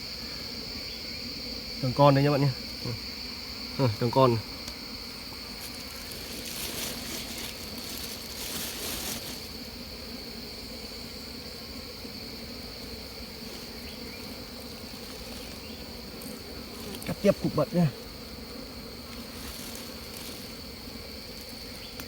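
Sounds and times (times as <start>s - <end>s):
bees buzzing: 0.0s - 22.0s
rustling: 5.2s - 9.8s, 13.0s - 17.6s, 19.0s - 21.8s.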